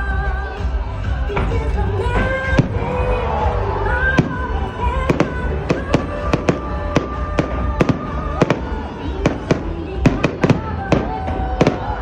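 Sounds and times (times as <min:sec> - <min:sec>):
music: 0:00.0 - 0:12.0
fireworks banging: 0:01.3 - 0:12.0.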